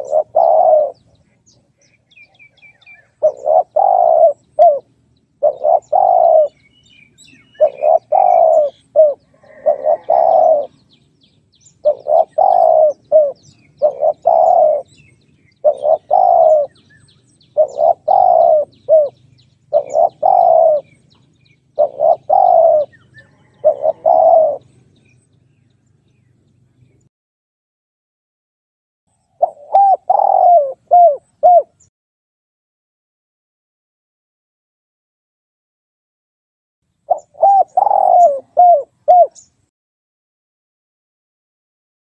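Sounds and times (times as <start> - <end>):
dove cooing: 0.0 - 10.9, 11.7 - 25.2, 29.4 - 31.9, 37.1 - 39.5
small birds chirping: 0.0 - 27.1, 29.1 - 31.9, 36.9 - 39.7.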